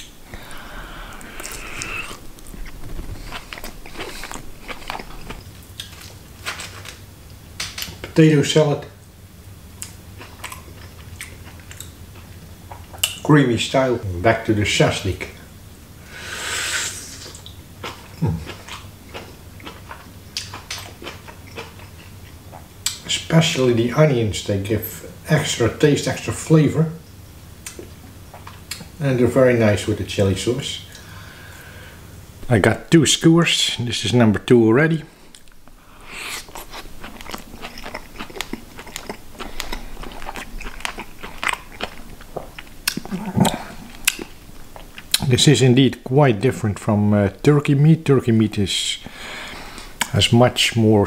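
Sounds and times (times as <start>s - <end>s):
biting into grilled meat: 0.4s - 7.0s, 35.4s - 45.3s
wet chewing clicks and smacks: 1.2s - 7.0s, 9.8s - 13.2s, 17.3s - 23.1s, 36.4s - 45.3s.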